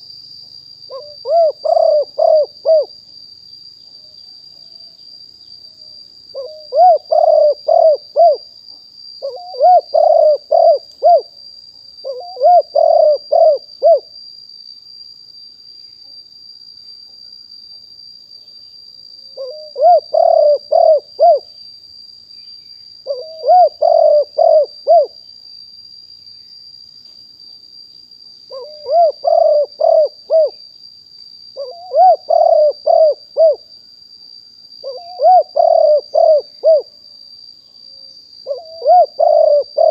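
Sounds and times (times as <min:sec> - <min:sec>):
dove cooing: 0:00.9 - 0:02.9, 0:06.3 - 0:08.4, 0:09.2 - 0:11.3, 0:12.0 - 0:14.1, 0:19.4 - 0:21.5, 0:23.1 - 0:25.2, 0:28.5 - 0:30.6, 0:31.6 - 0:33.6, 0:34.8 - 0:36.9, 0:38.4 - 0:39.9.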